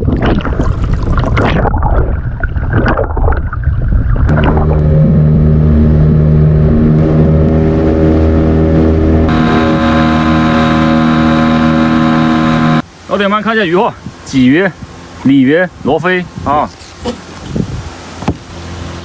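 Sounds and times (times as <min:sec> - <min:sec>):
water splashing around boat: 0:00.0 - 0:19.0
boat engine running: 0:04.3 - 0:13.4, 0:14.1 - 0:19.0
wind buffeting microphone: 0:16.2 - 0:18.6.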